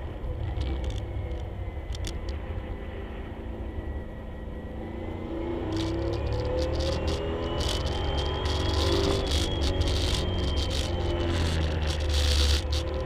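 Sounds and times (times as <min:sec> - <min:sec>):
race car engine: 0:00.1 - 0:13.0
brief rattles: 0:05.7 - 0:13.0.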